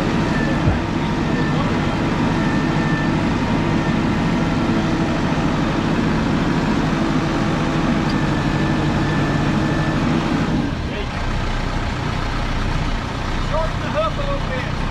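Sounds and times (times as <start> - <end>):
heavy diesel engine running: 0.0 - 14.9.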